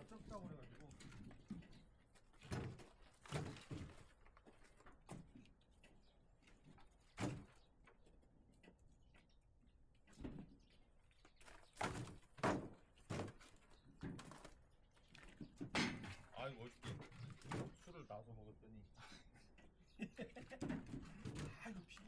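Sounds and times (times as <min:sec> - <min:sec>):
wooden logs knocking together: 0:00.0 - 0:05.6, 0:11.2 - 0:17.9, 0:20.2 - 0:22.0.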